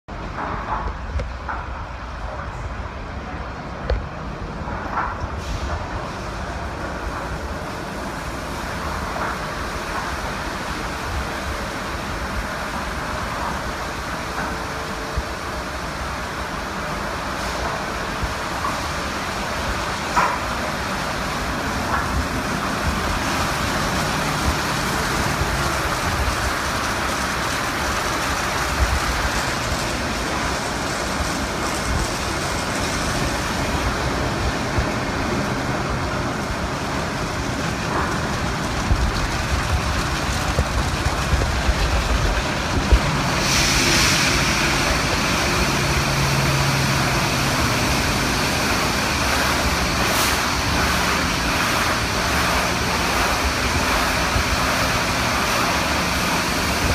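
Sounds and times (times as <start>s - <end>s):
car wash water rushing: 0.1s - 56.9s
hiss of water spray: 5.4s - 6.6s, 40.6s - 56.9s.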